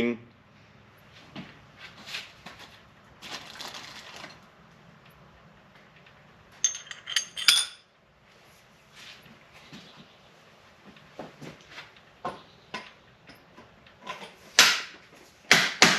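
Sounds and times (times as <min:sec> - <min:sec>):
rustling scrape: 0:01.8 - 0:04.4
small metal parts clinking: 0:06.6 - 0:07.9.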